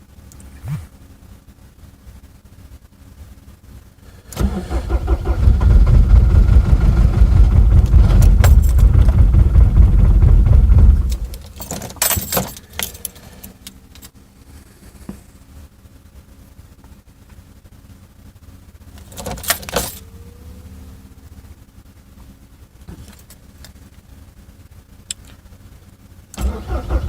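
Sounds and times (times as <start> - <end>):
diesel engine starting and running: 3.4 - 15.0, 17.6 - 27.0.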